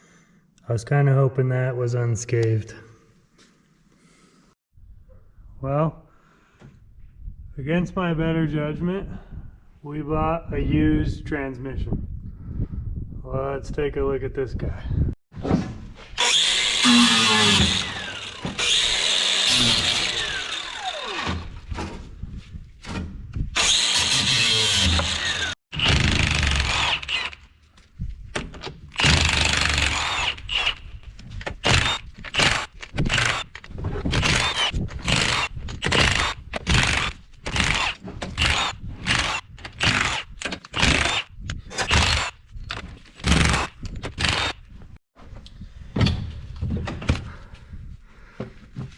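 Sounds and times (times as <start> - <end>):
handheld power tool running: 16.2 - 21.5, 23.6 - 27.4, 29.0 - 30.8, 31.6 - 42.3, 43.2 - 44.6.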